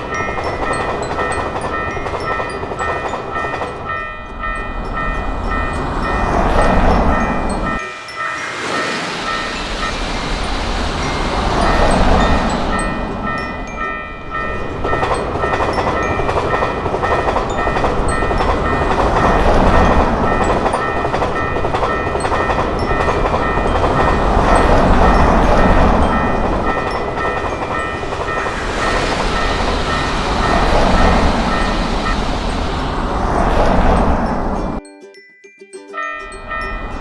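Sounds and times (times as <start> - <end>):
high steady tones: 0.0 - 34.8
train wheels rumbling on rails: 0.0 - 34.8, 36.3 - 37.0.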